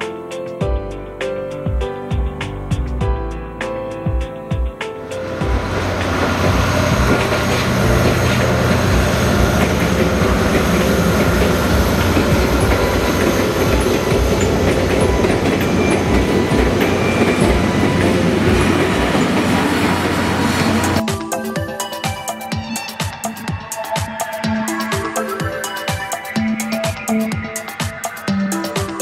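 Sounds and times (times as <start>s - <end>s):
diesel train passing: 5.0s - 21.0s
wheels clacking over rail joints: 5.2s - 21.0s.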